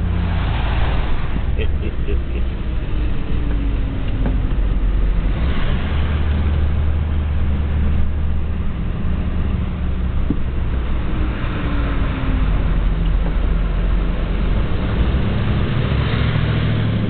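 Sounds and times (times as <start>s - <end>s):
traffic rumble: 0.0s - 17.0s
vehicles rushing past through water: 0.0s - 17.0s.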